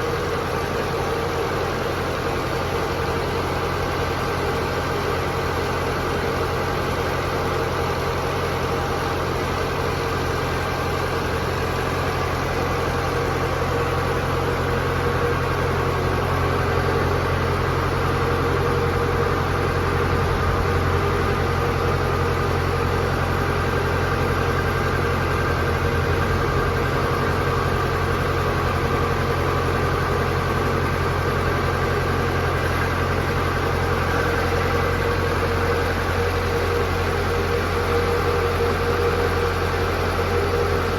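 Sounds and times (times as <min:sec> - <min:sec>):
machinery humming: 0:05.3 - 0:40.9.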